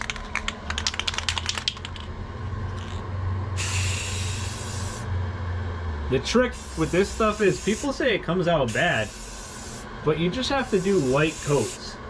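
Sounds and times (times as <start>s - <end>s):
spray can ball rattling: 0.0s - 2.1s, 3.6s - 5.0s
spray can hissing: 3.6s - 5.0s, 6.6s - 7.9s, 8.7s - 9.9s, 10.6s - 11.9s.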